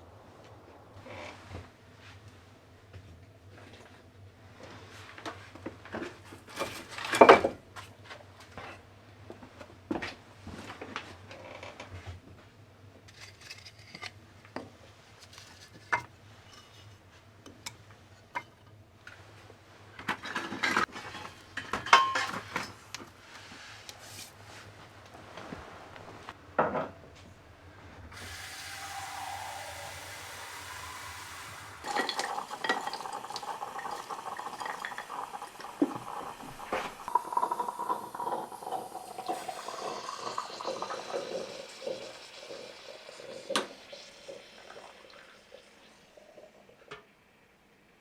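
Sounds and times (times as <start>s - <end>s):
dishes and cutlery clinking: 20.2s - 22.8s
water running: 28.1s - 46.9s
water poured into a vessel: 28.2s - 46.9s.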